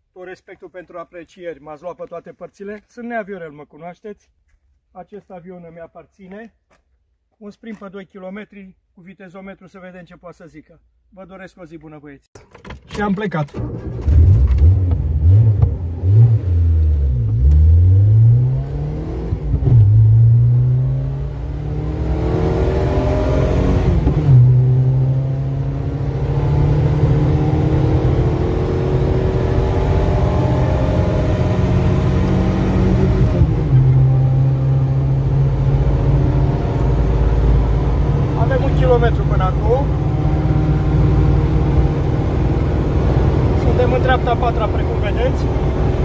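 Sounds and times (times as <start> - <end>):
car engine accelerating: 13.5 - 46.0.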